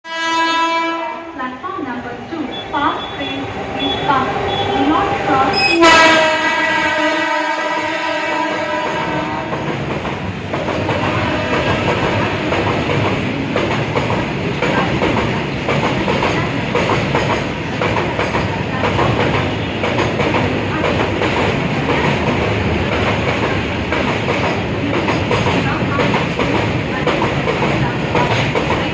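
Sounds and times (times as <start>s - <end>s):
locomotive horn chord: 0.1s - 1.4s, 5.5s - 9.5s
train wheels clattering over rail joints: 9.4s - 28.9s.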